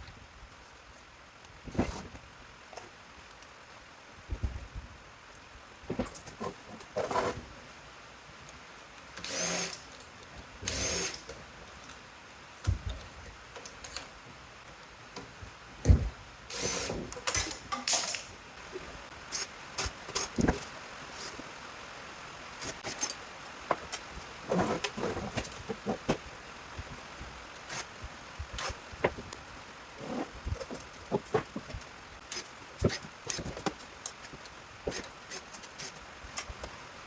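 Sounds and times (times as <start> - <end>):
power drill whirring: 9.2 - 9.8, 10.6 - 11.2, 16.5 - 17.0.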